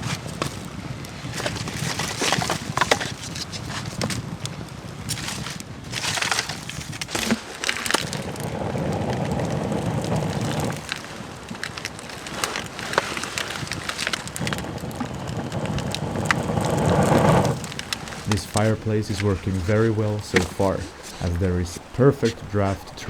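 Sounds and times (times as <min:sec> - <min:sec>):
wood fire crackling and popping: 0:00.0 - 0:23.0
fire rushing noise: 0:14.6 - 0:23.0.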